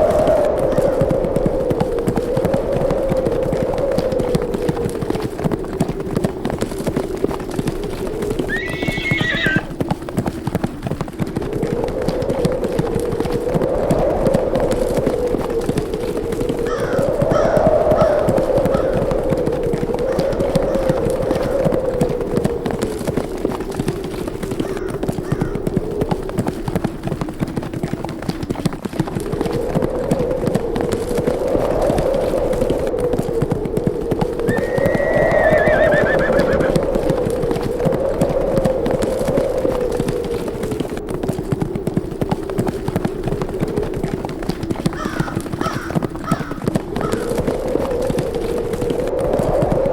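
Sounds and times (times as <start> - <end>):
horses galloping hoofbeats: 0.0 - 49.9
wind: 0.0 - 49.9
horse whinnying: 8.5 - 9.7, 34.5 - 36.8.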